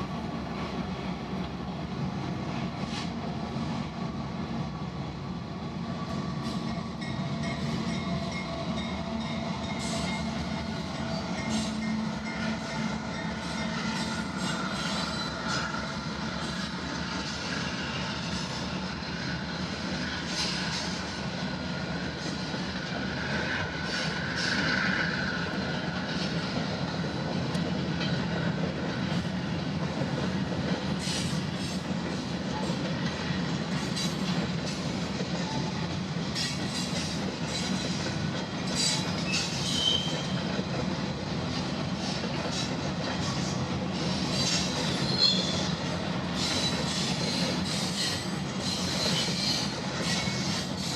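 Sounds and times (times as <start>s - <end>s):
freight train rumbling: 0.0s - 50.9s
train wheel clatter: 6.2s - 50.9s
faint wheel squeal: 38.8s - 40.4s, 44.3s - 45.7s.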